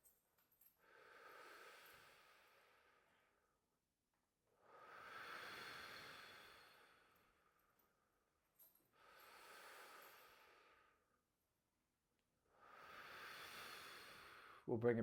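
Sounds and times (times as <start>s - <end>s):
slow deep breathing: 0.8s - 3.7s, 4.5s - 11.3s, 12.4s - 14.7s.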